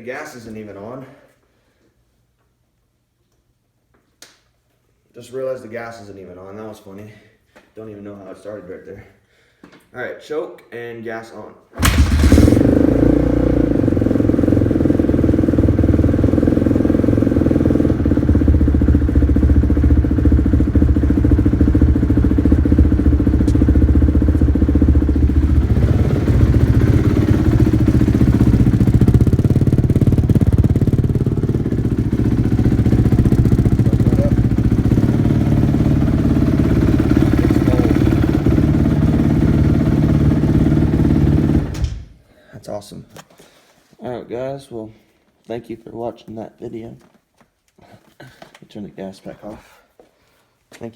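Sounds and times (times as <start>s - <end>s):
motorcycle engine idling: 11.8s - 41.8s.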